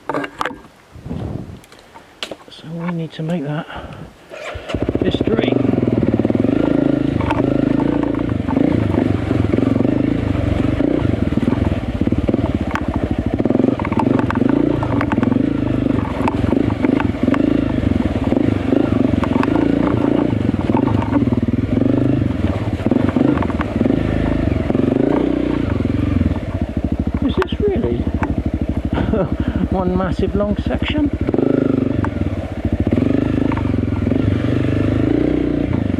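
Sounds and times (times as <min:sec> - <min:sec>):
dirt bike engine revving: 0:04.3 - 0:35.9
knocks and clatter from bike: 0:05.8 - 0:29.4, 0:30.6 - 0:35.9.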